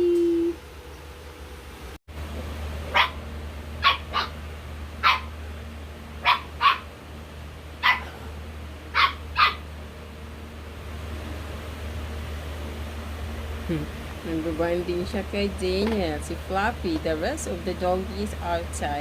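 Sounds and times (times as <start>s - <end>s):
dog barking: 2.9s - 3.2s, 3.8s - 4.4s, 5.0s - 5.3s, 6.2s - 6.9s, 7.8s - 8.2s, 8.9s - 9.6s.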